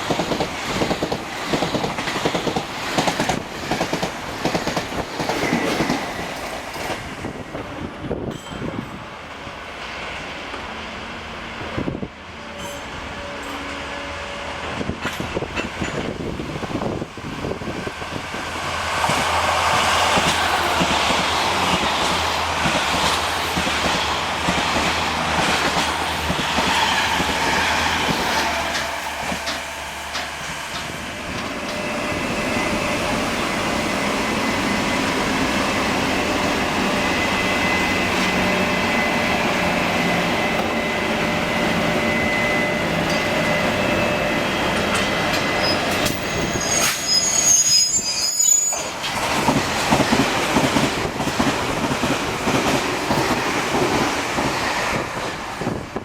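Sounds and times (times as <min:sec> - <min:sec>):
train wheels clattering over rail joints: 0:00.0 - 0:07.2, 0:14.9 - 0:16.5, 0:19.0 - 0:32.0, 0:48.8 - 0:56.0
high-pitched train squeal: 0:10.8 - 0:16.0, 0:26.0 - 0:49.6.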